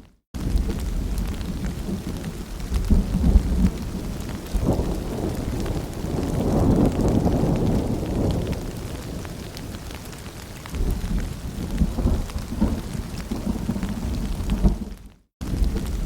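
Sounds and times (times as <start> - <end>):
distant thunder rumble: 0.4 - 16.0
rain pattering: 0.4 - 16.0.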